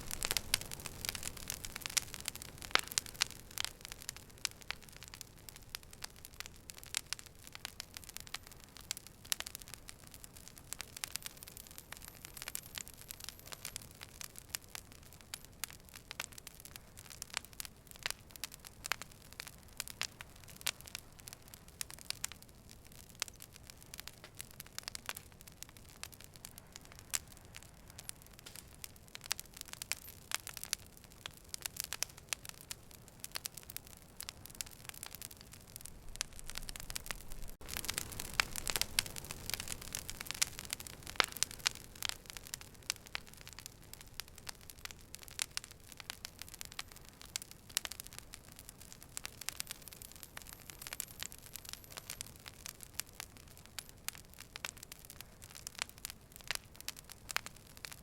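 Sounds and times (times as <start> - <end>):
fire crackling and popping: 0.0 - 58.0.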